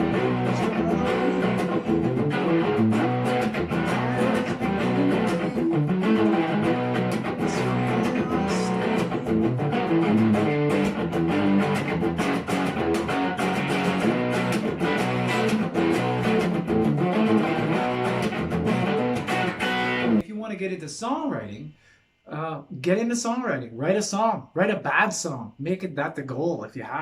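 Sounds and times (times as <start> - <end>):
guitar playing: 0.0 - 20.2.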